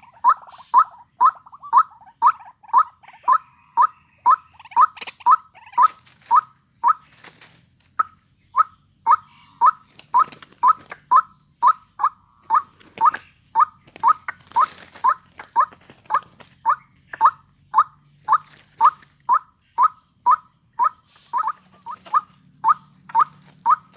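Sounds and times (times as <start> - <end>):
waterhen calling: 8.0 - 23.9.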